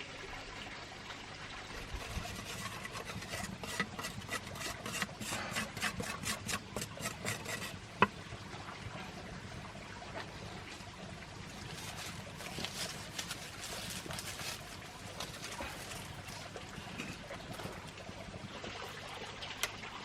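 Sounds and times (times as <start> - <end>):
rhythmic scraping strokes: 1.8 - 7.8.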